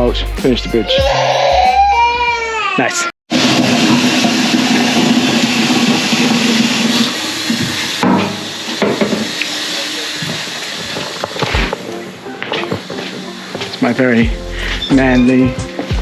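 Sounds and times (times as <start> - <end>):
water running: 3.6 - 14.3
low hum: 4.5 - 11.9.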